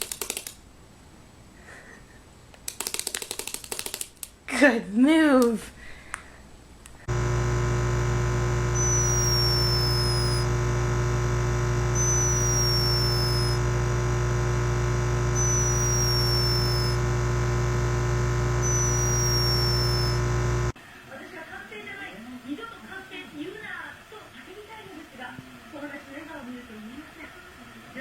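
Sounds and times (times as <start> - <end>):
steady electronic hum: 7.1 - 20.8.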